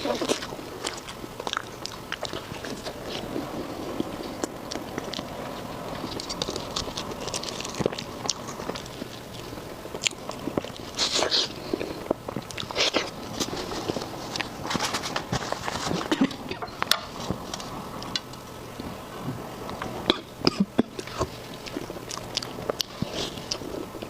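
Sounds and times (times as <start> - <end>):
chewing food: 0.0 - 24.0.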